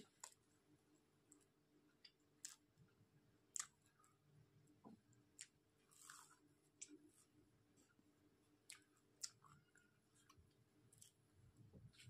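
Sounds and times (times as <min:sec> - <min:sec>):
person chewing: 0:02.4 - 0:02.7, 0:03.5 - 0:03.9, 0:05.4 - 0:07.3, 0:08.6 - 0:11.2
soft crunch of a bite: 0:05.4 - 0:07.3.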